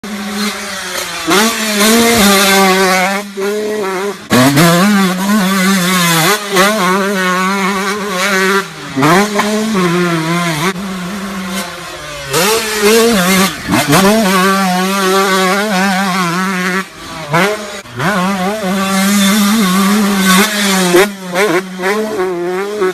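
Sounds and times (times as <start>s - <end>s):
dirt bike engines revving: 0.0s - 22.9s.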